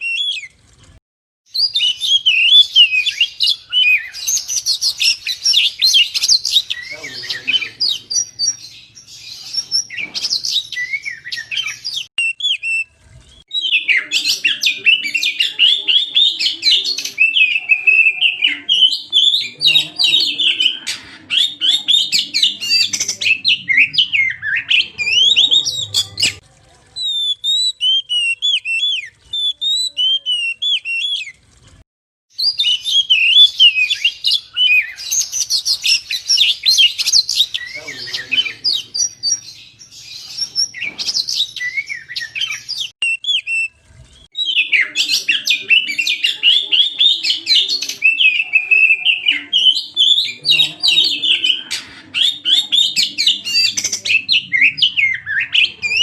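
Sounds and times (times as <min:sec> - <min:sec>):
magpie-robin singing whistles: 0:01.5 - 0:12.9, 0:27.0 - 0:31.3, 0:32.4 - 0:43.8, 0:44.4 - 0:50.7.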